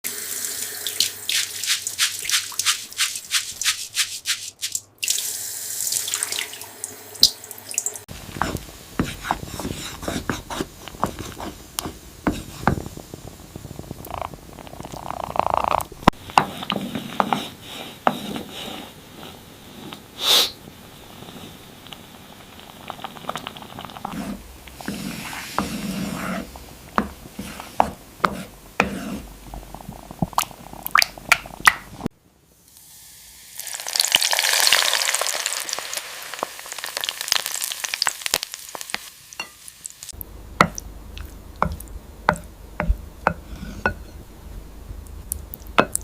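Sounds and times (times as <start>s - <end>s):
water splashing and dripping: 0.1s - 8.1s.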